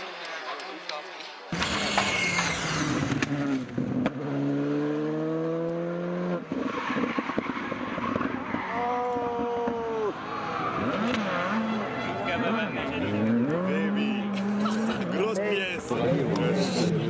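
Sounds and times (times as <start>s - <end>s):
rally car engine revving: 1.6s - 15.2s.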